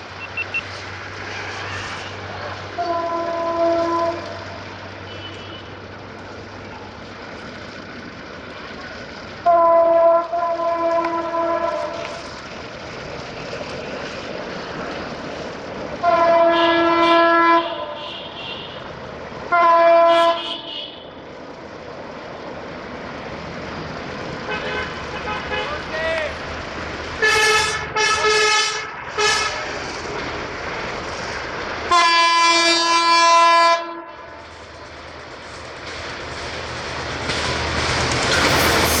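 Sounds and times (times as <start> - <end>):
train and wind rushing: 0.0 - 39.0
train horn blasts: 2.8 - 4.4, 9.4 - 12.2, 16.0 - 18.8, 19.5 - 21.1, 27.2 - 29.7, 31.9 - 34.4.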